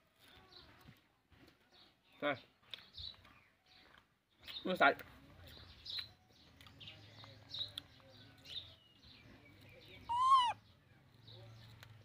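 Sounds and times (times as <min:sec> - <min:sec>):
faint bird chirps: 0:05.7 - 0:11.8.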